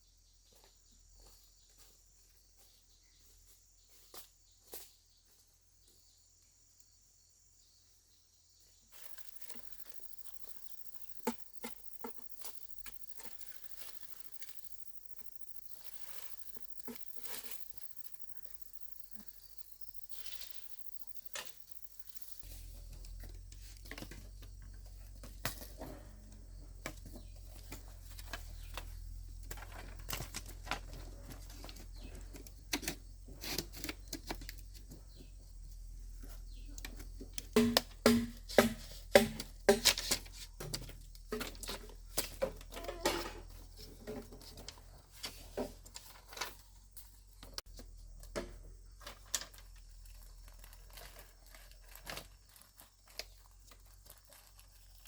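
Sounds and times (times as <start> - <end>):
rustling: 9.0 - 35.3
sharp clicks and knocks: 9.1 - 22.4, 36.8 - 43.4.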